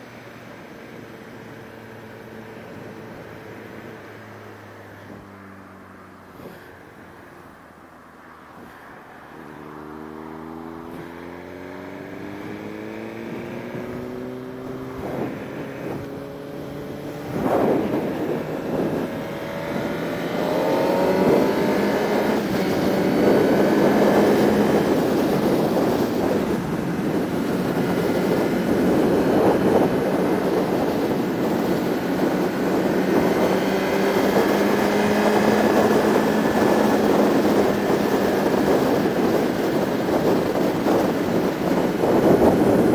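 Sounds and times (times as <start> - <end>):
motorcycle engine accelerating: 8.5 - 42.9
wind rush on microphone: 8.5 - 42.9.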